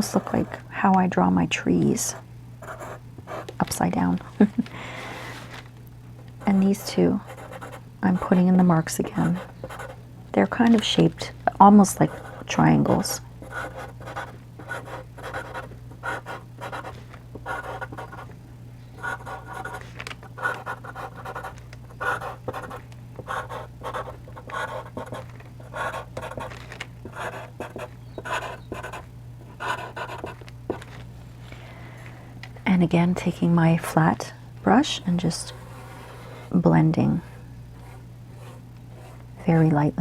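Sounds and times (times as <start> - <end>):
charcoal pencil scratching paper: 7.2 - 8.4, 9.1 - 10.0, 13.4 - 18.2, 19.0 - 19.8, 20.4 - 26.5, 27.1 - 30.4.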